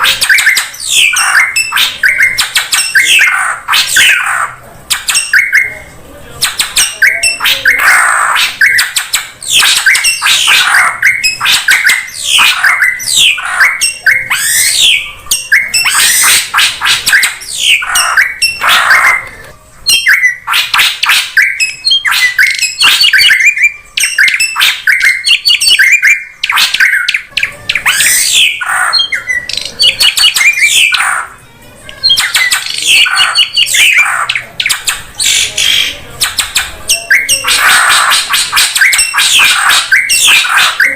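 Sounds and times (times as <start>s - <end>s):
drongo calling: 0.0s - 5.9s, 6.5s - 31.4s.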